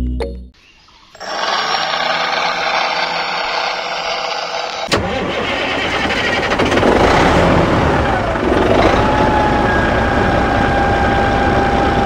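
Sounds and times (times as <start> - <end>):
small motor running: 1.2 - 4.9.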